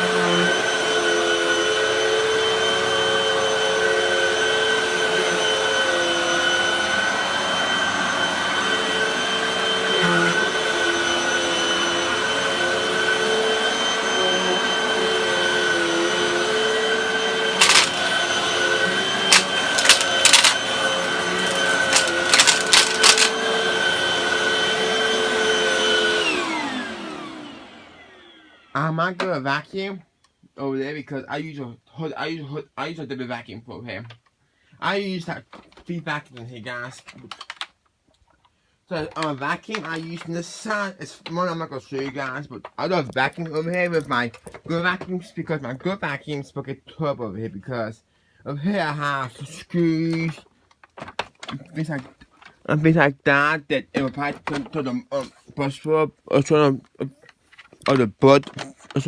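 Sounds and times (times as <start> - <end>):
vacuum cleaner motor whine: 0.0 - 28.7
sharp clicks and rattles: 17.6 - 18.0, 19.3 - 23.3.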